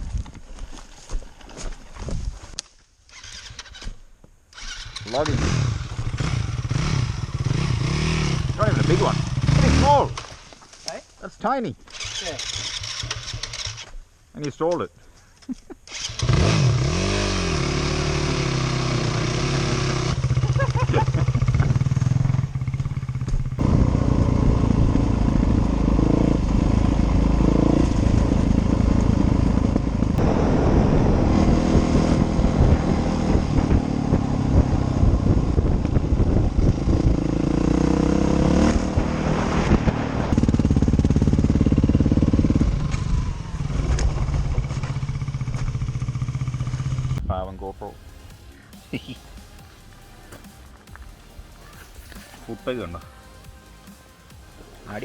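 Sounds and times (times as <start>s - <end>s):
dirt bike engine revving: 4.5s - 10.4s, 11.9s - 13.9s, 15.9s - 47.2s.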